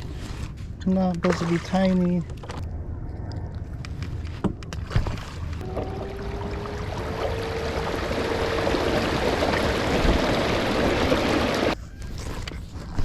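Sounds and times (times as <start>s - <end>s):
wind: 0.0s - 13.0s
electric motor whine: 5.6s - 11.8s
rushing water: 5.6s - 11.8s.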